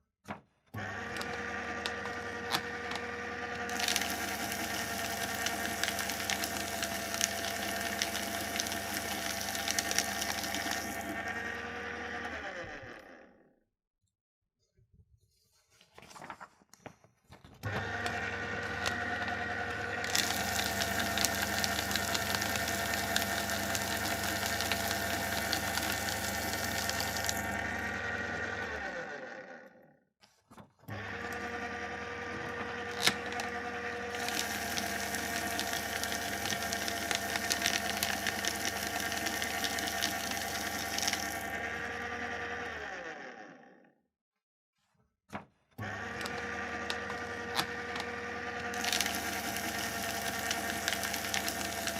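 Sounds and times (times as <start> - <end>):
paper shredder motor humming: 0.3 - 13.5, 17.5 - 29.9, 30.5 - 44.0, 45.8 - 51.9
paper crackling and tearing: 15.7 - 16.7, 32.8 - 33.4, 48.7 - 51.9.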